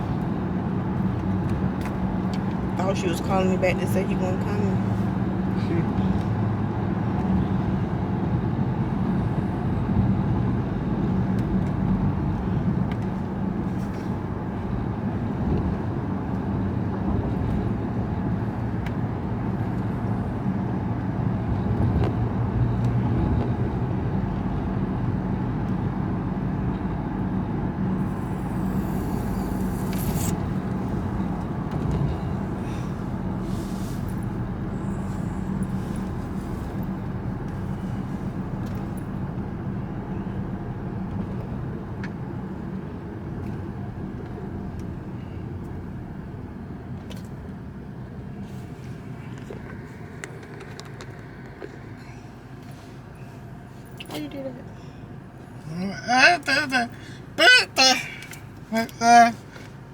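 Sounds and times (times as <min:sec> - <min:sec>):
car engine and road drone: 0:00.0 - 0:59.9
brief rushing hiss: 0:28.0 - 0:30.9.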